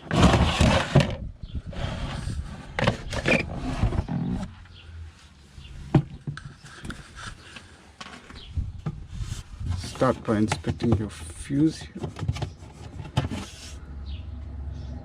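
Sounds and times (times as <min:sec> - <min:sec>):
plastic cassette scraping and sliding: 0:00.0 - 0:04.5.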